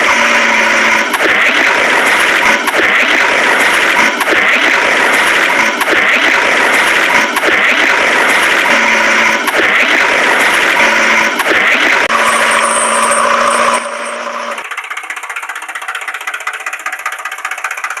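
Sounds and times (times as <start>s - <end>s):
engine idling with rattle: 0.0s - 18.0s
loud engine drone: 0.0s - 18.0s.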